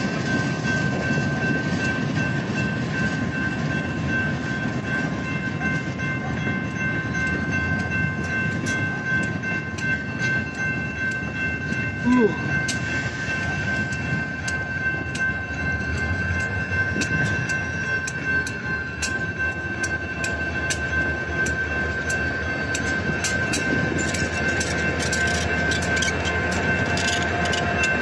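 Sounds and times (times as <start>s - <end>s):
crossing bell ringing: 0.0s - 28.0s
freight train rumbling past: 0.0s - 28.0s
wheels clicking over rail joints: 3.4s - 28.0s.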